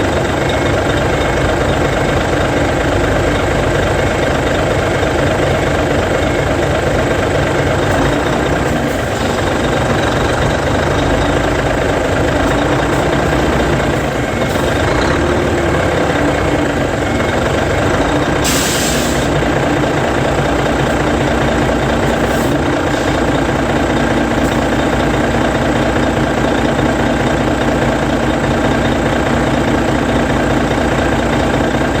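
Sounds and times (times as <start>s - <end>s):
diesel engine idling: 0.0s - 32.0s
air brake hiss: 18.4s - 19.3s.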